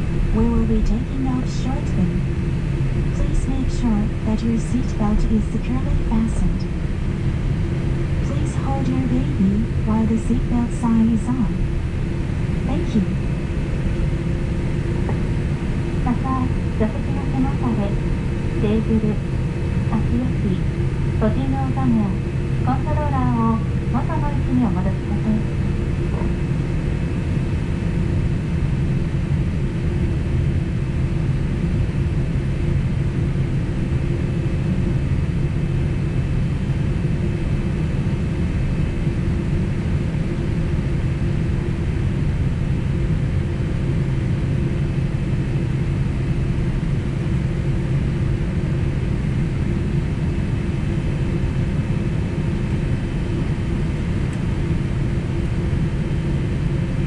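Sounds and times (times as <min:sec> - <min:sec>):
faint steady tones: 0:00.0 - 0:30.2
jet engines droning in cabin: 0:00.0 - 0:57.0.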